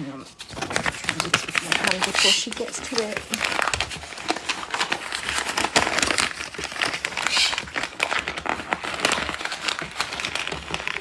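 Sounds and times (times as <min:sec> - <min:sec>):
paper crinkling: 0:00.0 - 0:11.0.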